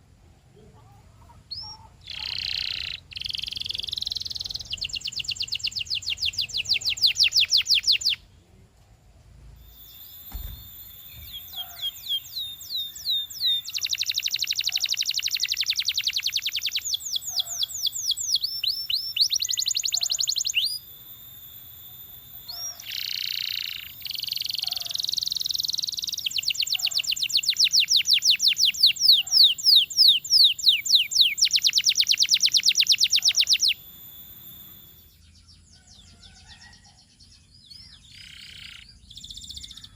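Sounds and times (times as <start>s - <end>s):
canary singing trills: 0.8s - 8.3s, 9.6s - 39.9s.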